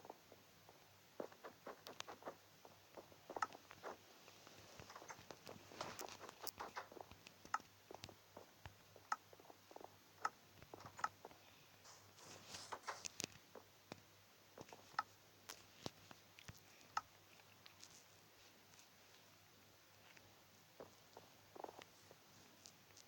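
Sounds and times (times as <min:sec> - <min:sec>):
small clicks and light taps: 0:01.2 - 0:02.2, 0:04.4 - 0:09.2, 0:10.2 - 0:11.4, 0:12.5 - 0:18.1.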